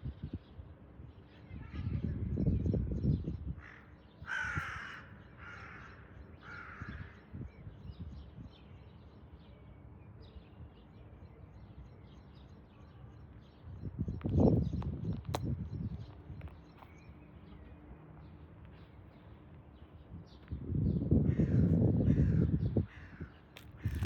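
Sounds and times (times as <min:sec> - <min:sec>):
harsh crow-like bird calls: 0:03.5 - 0:07.6, 0:21.1 - 0:24.0.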